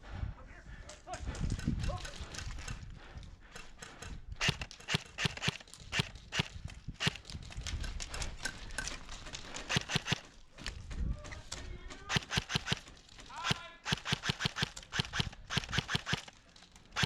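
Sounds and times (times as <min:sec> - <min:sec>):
footsteps on rough ground: 0:04.4 - 0:13.8.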